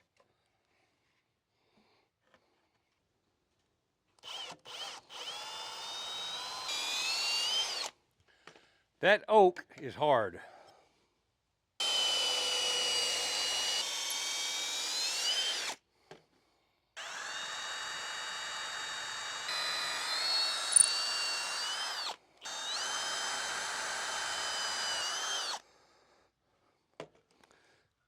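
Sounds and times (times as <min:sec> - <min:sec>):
power drill boring into wood: 0:04.2 - 0:07.9, 0:11.8 - 0:15.8, 0:17.0 - 0:25.6.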